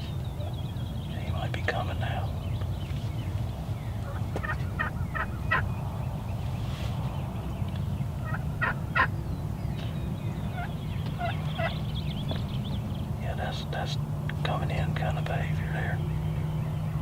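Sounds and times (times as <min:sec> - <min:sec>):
steady low rumble: 0:00.0 - 0:17.0
turkey calls: 0:03.3 - 0:13.9.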